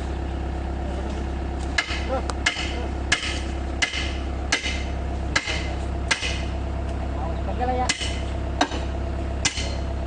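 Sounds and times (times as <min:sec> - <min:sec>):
hammer striking steel track: 0:01.8 - 0:06.6, 0:07.9 - 0:09.8.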